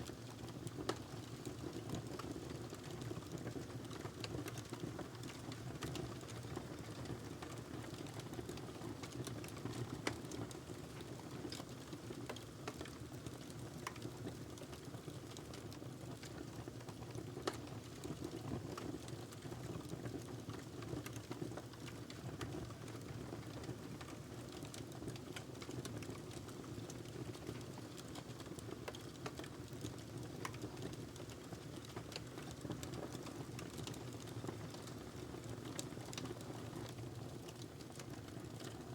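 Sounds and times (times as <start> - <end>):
fire crackling and popping: 0.1 - 38.9.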